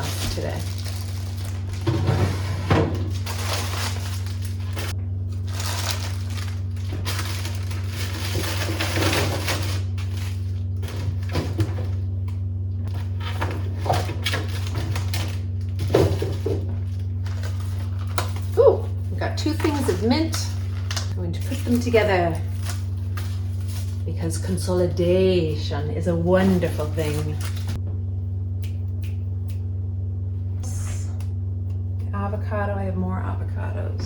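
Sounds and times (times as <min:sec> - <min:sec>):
plastic packaging crinkling: 0:00.0 - 0:12.0, 0:12.9 - 0:24.5, 0:26.2 - 0:27.8
steady low hum: 0:00.0 - 0:34.0.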